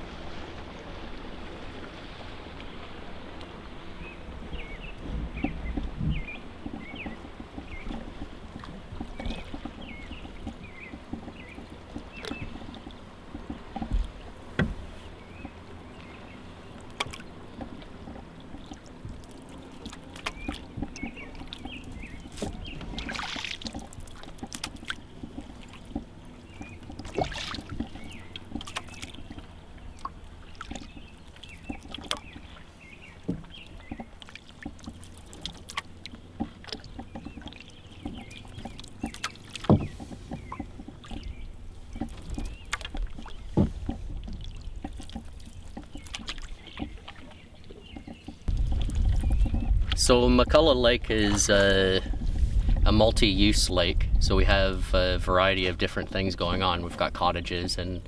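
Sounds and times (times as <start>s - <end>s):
paddle strokes splashing: 0.0s - 54.5s, 55.1s - 58.0s
large splashes: 21.2s - 25.8s, 27.0s - 29.2s.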